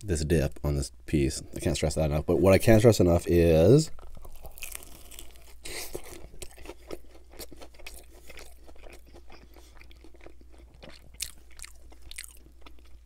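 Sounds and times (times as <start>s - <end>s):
chewing crispy fried chicken: 4.0s - 13.0s.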